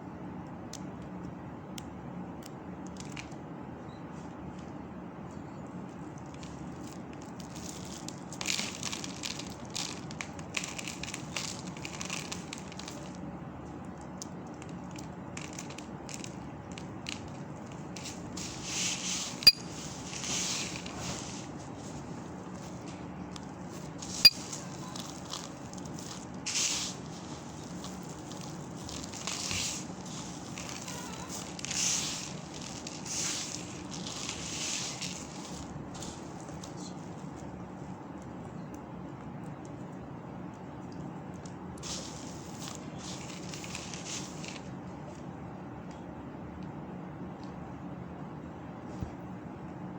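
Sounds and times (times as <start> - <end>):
soap balls crunching: 25.0 - 35.6.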